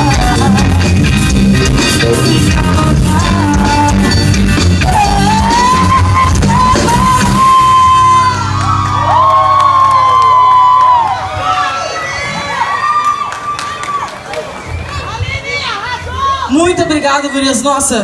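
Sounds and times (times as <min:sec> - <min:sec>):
live band playing: 0:00.0 - 0:12.8
crowd shouts and whoops: 0:04.8 - 0:17.8.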